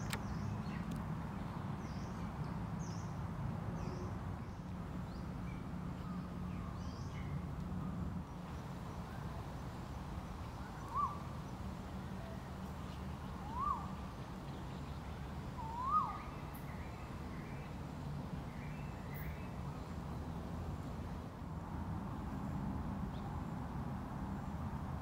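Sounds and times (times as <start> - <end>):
bird calling: 10.6 - 11.4, 13.4 - 14.1, 15.5 - 16.9.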